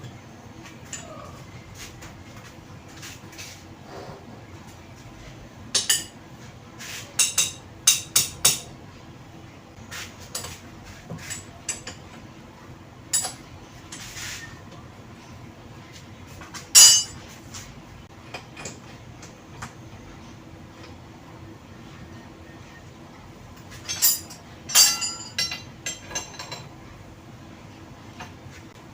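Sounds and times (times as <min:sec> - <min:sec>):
steel tools clinking and clanking: 0:16.8 - 0:17.2, 0:23.6 - 0:26.7.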